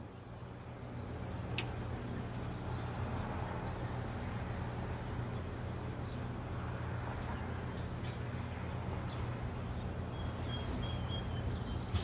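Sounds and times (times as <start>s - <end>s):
steady low hum: 0.0s - 12.0s
bird chirps: 10.1s - 12.0s.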